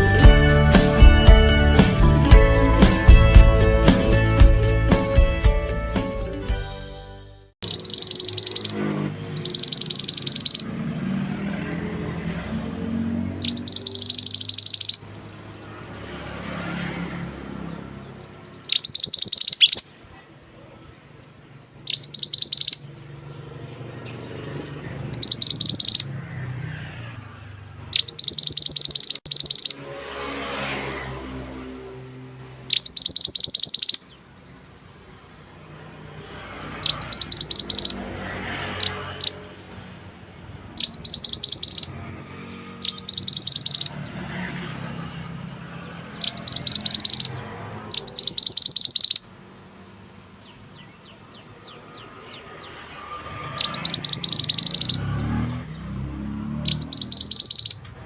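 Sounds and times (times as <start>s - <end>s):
bird rattling song: 7.6s - 11.0s, 11.6s - 20.0s, 21.8s - 29.8s, 32.4s - 58.0s.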